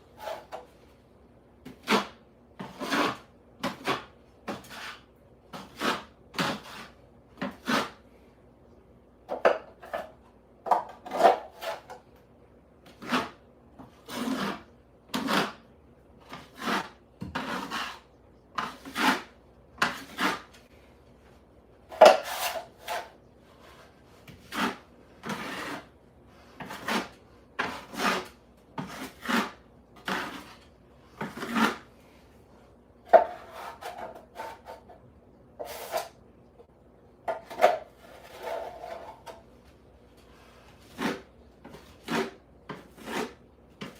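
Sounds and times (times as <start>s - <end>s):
hand tool rasping a hard surface: 1.8s - 5.0s, 16.3s - 18.0s, 24.5s - 25.9s, 26.6s - 30.6s, 40.9s - 43.9s.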